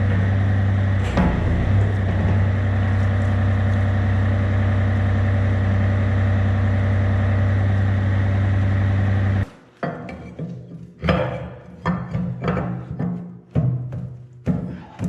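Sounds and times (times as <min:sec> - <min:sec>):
diesel excavator engine idling: 0:00.0 - 0:09.5.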